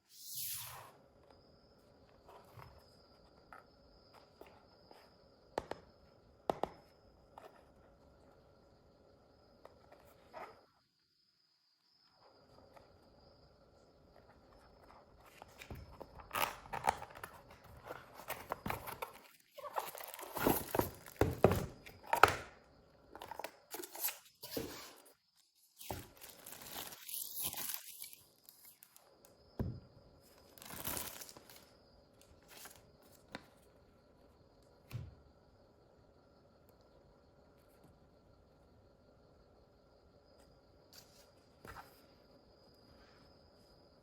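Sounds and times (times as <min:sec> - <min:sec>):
packaging crinkling and tearing: 0:26.0 - 0:28.8, 0:30.6 - 0:31.6.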